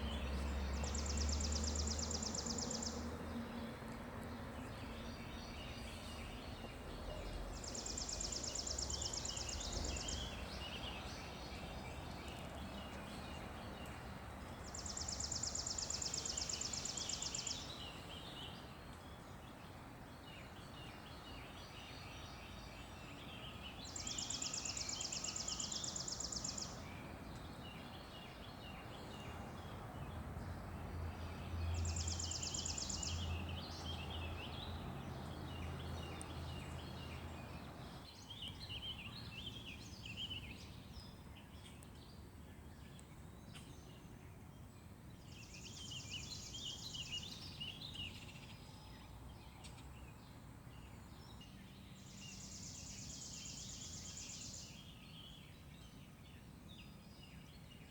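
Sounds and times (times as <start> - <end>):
birds chirping: 0.0 - 44.5.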